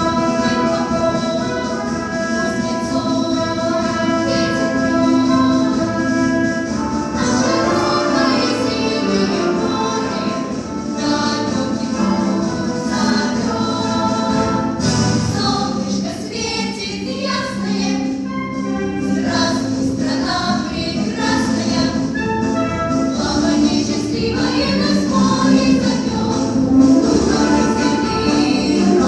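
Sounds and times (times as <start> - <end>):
children's choir singing a march: 0.0 - 29.0
pop ensemble accompaniment: 0.0 - 29.0.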